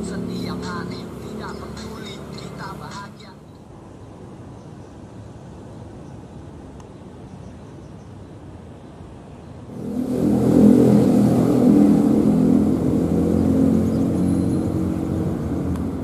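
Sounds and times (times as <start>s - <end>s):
aircraft engines at takeoff: 0.0s - 3.3s, 9.5s - 16.0s.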